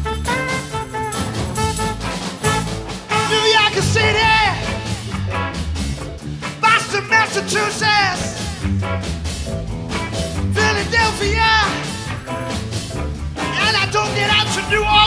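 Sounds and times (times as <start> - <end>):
live soul band with horns: 0.0 - 15.0
singer shouting: 3.1 - 5.3, 6.6 - 8.8, 10.5 - 12.2, 13.4 - 15.0.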